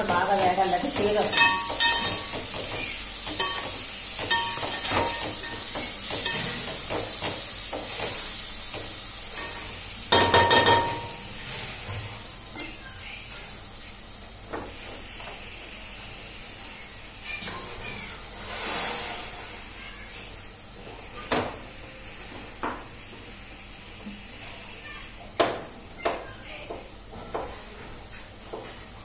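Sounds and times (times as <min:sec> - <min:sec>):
leaves and onions sizzling: 0:00.0 - 0:29.0
ladle knocking on a pot: 0:10.1 - 0:11.1.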